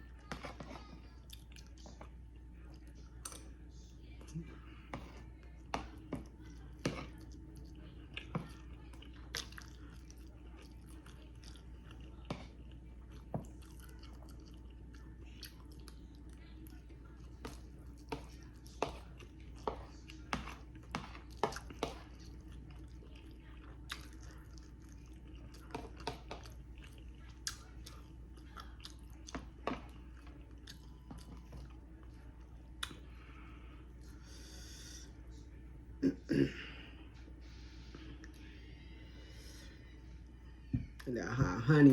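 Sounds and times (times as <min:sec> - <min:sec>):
person chewing and crunching food: 0:00.0 - 0:03.5, 0:04.1 - 0:33.4
steady low hum: 0:00.0 - 0:41.9.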